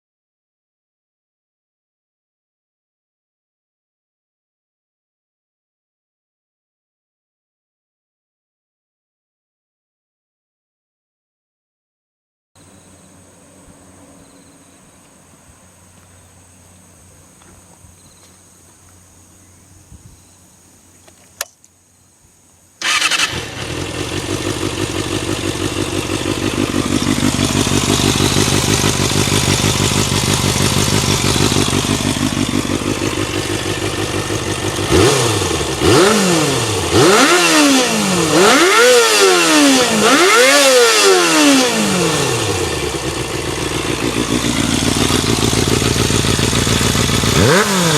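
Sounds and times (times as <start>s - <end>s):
motorcycle engine idling and revving: 12.6s - 19.3s, 22.8s - 47.9s
click: 21.0s - 21.8s.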